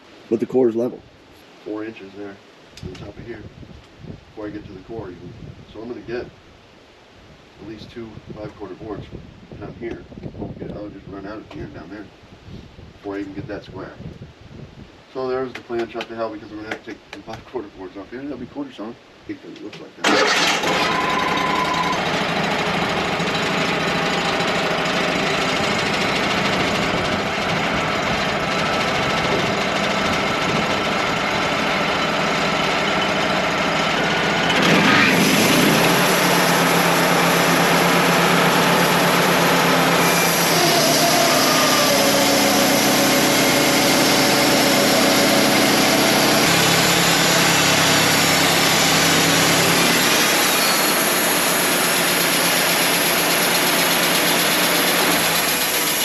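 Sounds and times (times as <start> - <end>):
sawmill engine running: 20.0 - 56.0
band blade cutting log: 40.0 - 56.0.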